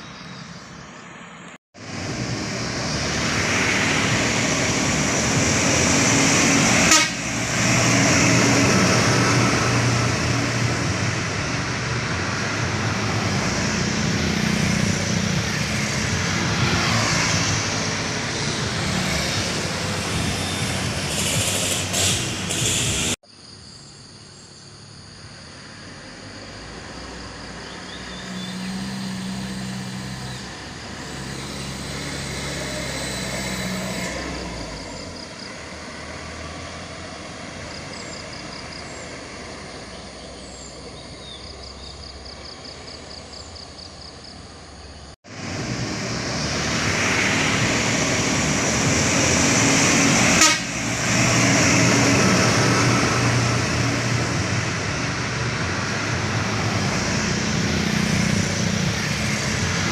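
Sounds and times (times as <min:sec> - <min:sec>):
truck engines running: 0:00.0 - 0:23.2, 0:25.9 - 0:59.9
road noise: 0:00.0 - 0:59.9
truck horn blasts: 0:06.6 - 0:07.4, 0:50.1 - 0:51.1.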